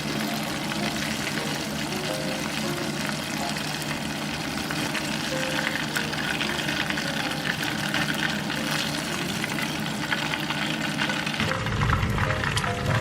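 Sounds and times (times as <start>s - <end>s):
chicken deep-frying in hot oil: 0.0s - 13.0s.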